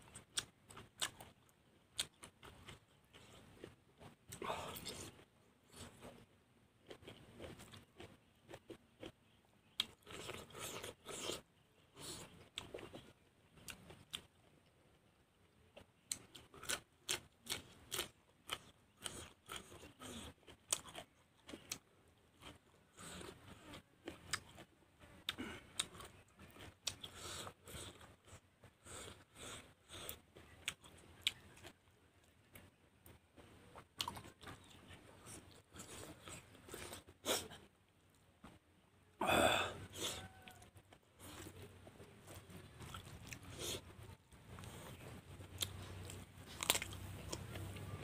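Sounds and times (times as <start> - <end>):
man chewing food: 0.0 - 38.6, 39.2 - 48.0
crisp mouth clicks and crunches: 44.5 - 47.6.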